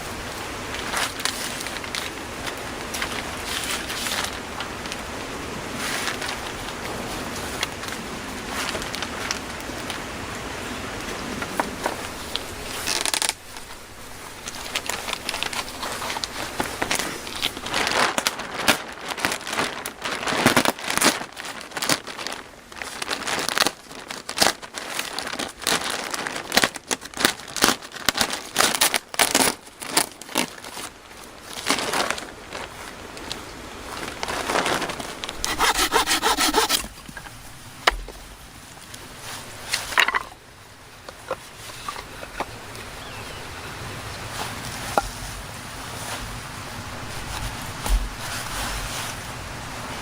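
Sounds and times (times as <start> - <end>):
hand saw cutting wood: 35.3 - 37.2.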